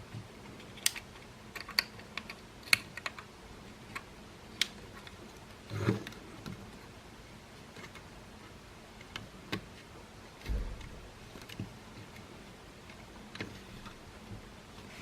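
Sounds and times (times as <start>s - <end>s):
plastic parts clicking and tapping: 0.4s - 6.6s, 9.0s - 14.4s
dull bump: 10.5s - 11.2s.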